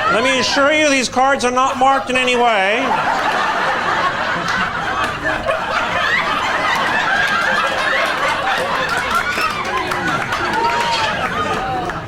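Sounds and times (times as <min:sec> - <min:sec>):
audience laughing: 0:00.0 - 0:12.0.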